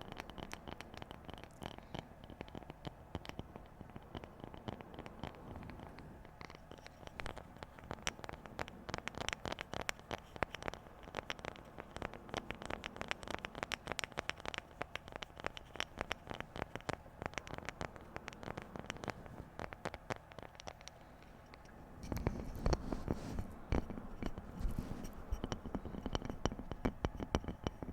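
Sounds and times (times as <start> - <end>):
light tapping on objects: 0.0 - 27.9
scratchy rustling: 22.0 - 26.7.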